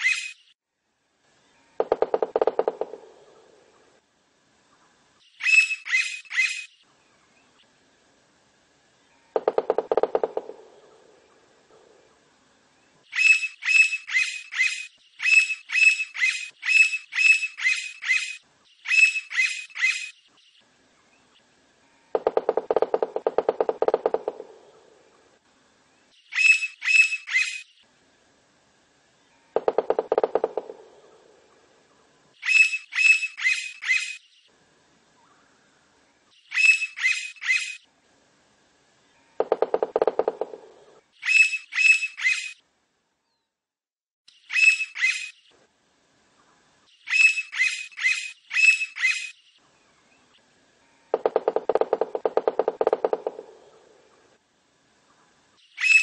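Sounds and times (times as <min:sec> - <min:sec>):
woodpecker calling: 0:00.0 - 0:00.4, 0:01.8 - 0:03.9, 0:05.4 - 0:06.7, 0:09.3 - 0:12.0, 0:13.1 - 0:20.2, 0:22.2 - 0:25.2, 0:26.3 - 0:27.7, 0:29.5 - 0:31.6, 0:32.4 - 0:34.2, 0:36.5 - 0:37.8, 0:39.4 - 0:42.6, 0:44.4 - 0:45.4, 0:47.0 - 0:49.4, 0:51.1 - 0:54.4, 0:55.6 - 0:56.0
woodpecker drumming: 0:01.8 - 0:03.7, 0:09.3 - 0:12.1, 0:22.2 - 0:25.2, 0:29.6 - 0:31.6, 0:39.4 - 0:42.5, 0:51.1 - 0:54.3.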